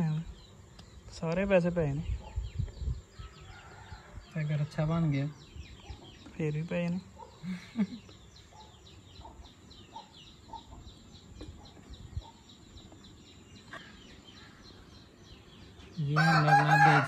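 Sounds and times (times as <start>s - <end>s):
small bird chirping rapidly: 0.0s - 16.4s
faint chicken clucks: 2.1s - 4.6s, 7.1s - 14.8s.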